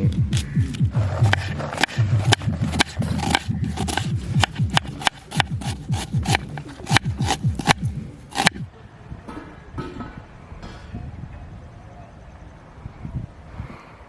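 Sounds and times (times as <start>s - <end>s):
person chewing crunchy food: 0.2s - 8.6s.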